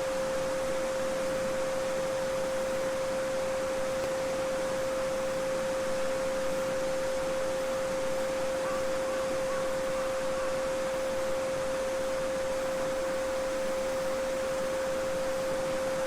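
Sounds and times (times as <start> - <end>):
steady pure tone: 0.0 - 16.0.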